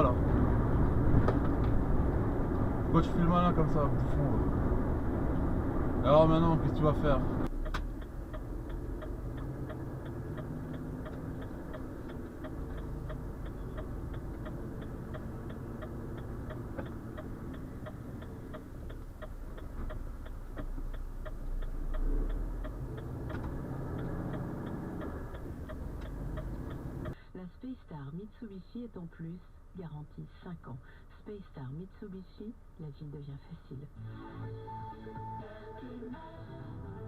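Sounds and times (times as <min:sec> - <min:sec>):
diesel engine rumble: 0:00.0 - 0:34.1
turn signal ticking: 0:04.8 - 0:33.6.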